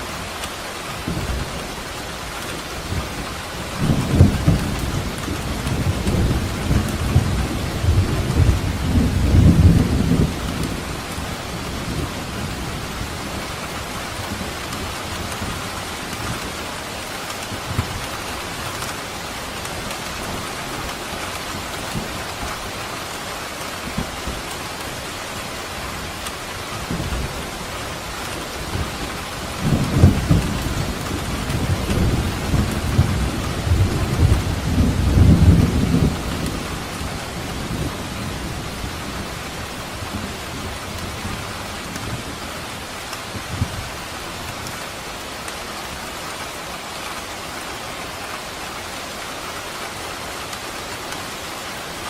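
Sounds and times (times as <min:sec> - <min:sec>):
steady rain falling: 0:00.0 - 0:52.0
thunder rumbling: 0:02.9 - 0:13.5, 0:25.9 - 0:43.9.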